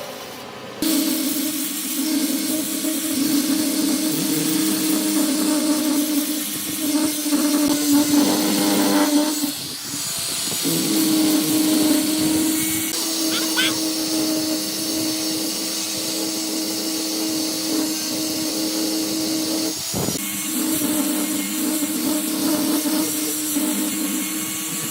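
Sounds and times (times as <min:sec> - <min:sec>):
power tool motor whining: 0:00.8 - 0:24.9
loud hiss: 0:11.7 - 0:14.0.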